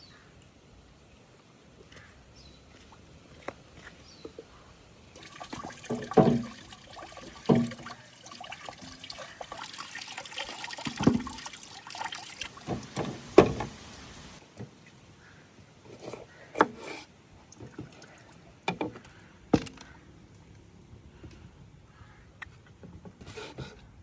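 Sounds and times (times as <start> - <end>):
water sloshes or knocks: 2.6 - 4.6, 5.2 - 15.0, 16.0 - 19.0
water splashing in a container: 2.6 - 15.0, 17.4 - 18.8.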